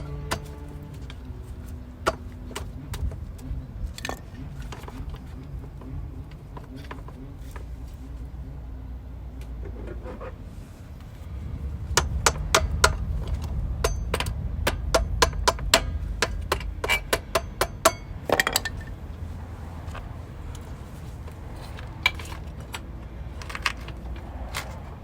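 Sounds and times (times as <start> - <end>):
hammer striking metal: 11.9 - 18.9.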